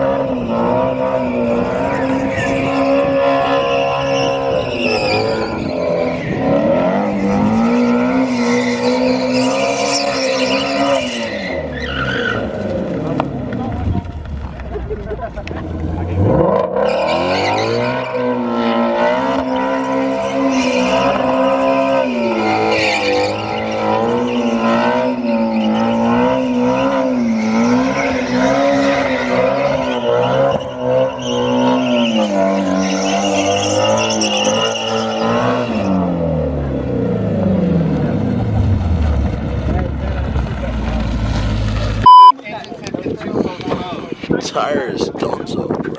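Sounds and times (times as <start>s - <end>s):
car engine at high revs: 0.0s - 42.3s
tyres squealing: 8.3s - 12.5s.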